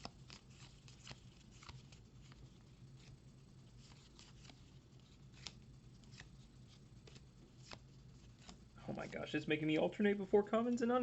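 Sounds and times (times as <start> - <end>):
trading cards clicking and rustling: 0.0 - 3.2, 3.8 - 9.2
low room hum: 0.0 - 11.0.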